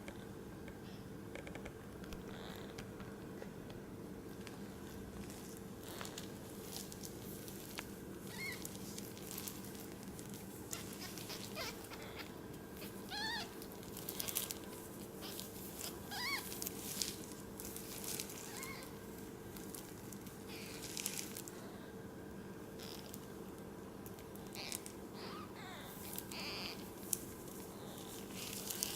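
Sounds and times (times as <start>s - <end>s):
steady low hum: 0.0s - 28.9s
soft rustling and scratching: 4.3s - 21.6s, 24.1s - 28.9s
kittens mewing: 8.3s - 8.8s, 10.7s - 14.6s, 15.2s - 16.6s, 18.2s - 19.0s, 24.4s - 28.9s.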